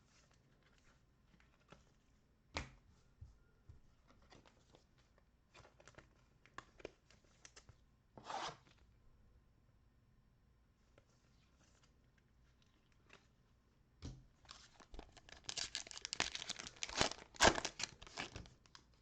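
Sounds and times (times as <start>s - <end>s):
card pack ripping: 15.0s - 18.4s.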